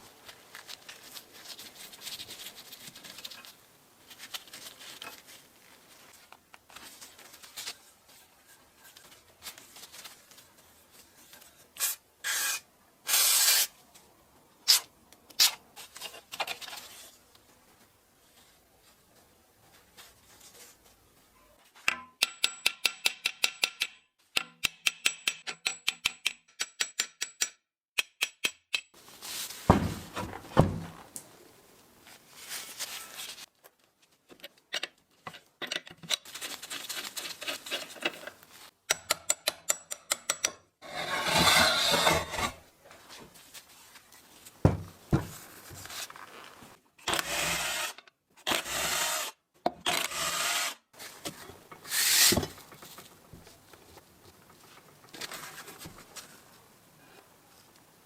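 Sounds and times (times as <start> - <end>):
metal scraping: 40.8 - 42.6.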